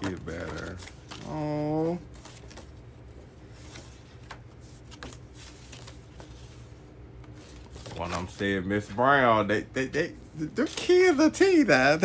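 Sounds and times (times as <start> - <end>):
cards clicking: 0.0 - 1.5
paper rustling: 0.0 - 9.0
low steady hum: 0.0 - 12.0.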